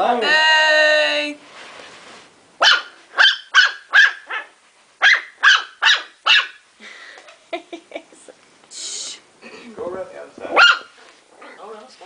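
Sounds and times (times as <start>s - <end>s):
puppy barking: 2.6s - 6.6s, 10.6s - 11.0s.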